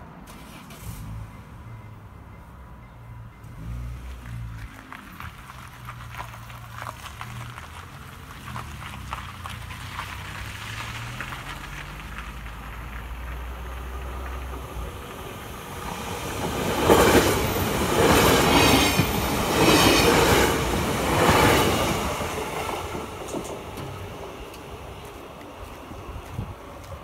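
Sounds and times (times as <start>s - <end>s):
train wheels clattering on rails: 11.0s - 27.0s.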